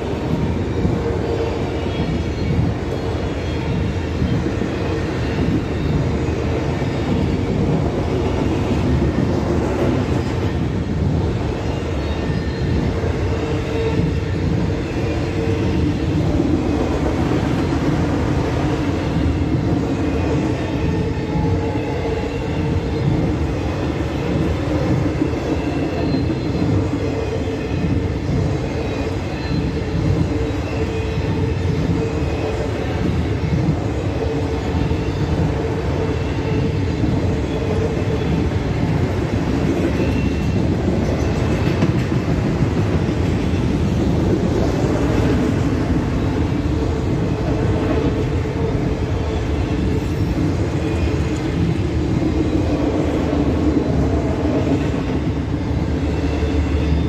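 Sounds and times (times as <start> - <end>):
train wheels rumbling and rattling: 0.0 - 57.0
faint high squeals: 11.4 - 16.2.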